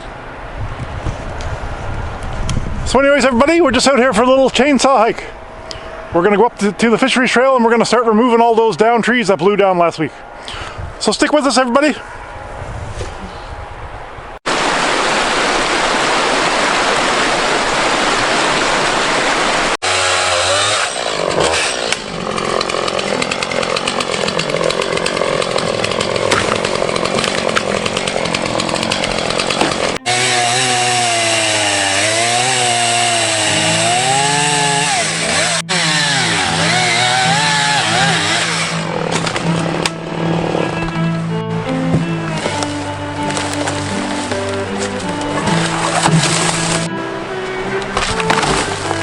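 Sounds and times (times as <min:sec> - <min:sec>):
chainsaw cutting wood: 0:19.8 - 0:41.0, 0:41.7 - 0:46.9, 0:47.8 - 0:49.0.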